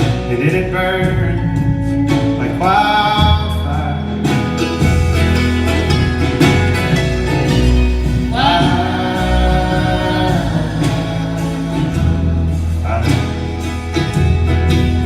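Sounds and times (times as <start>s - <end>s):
bass: 0.0s - 15.0s
plucked acoustic guitar: 0.0s - 15.0s
long held sung notes: 8.0s - 12.6s.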